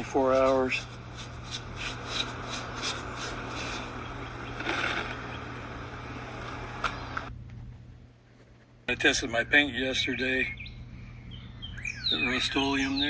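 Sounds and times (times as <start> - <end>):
hand tool scraping: 0.0 - 5.3
low steady hum: 0.0 - 13.0.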